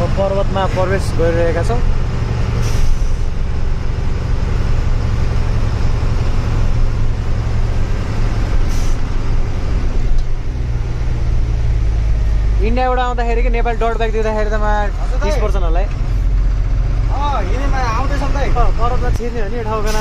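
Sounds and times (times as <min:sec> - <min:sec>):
truck engine drone: 0:00.0 - 0:20.0
short hisses: 0:02.6 - 0:03.3, 0:08.7 - 0:09.1.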